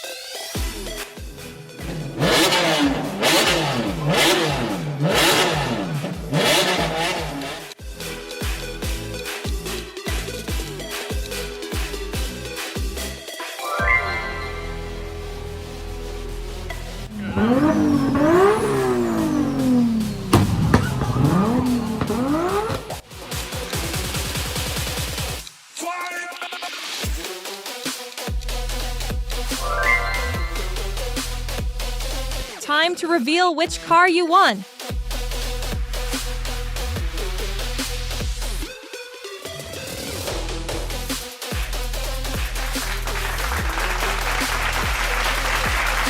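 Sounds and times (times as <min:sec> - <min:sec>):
car engine revving: 0:00.9 - 0:07.8, 0:14.5 - 0:23.0
exhaust cracks: 0:01.7 - 0:07.8, 0:16.2 - 0:23.0
low thumps: 0:17.1 - 0:23.0.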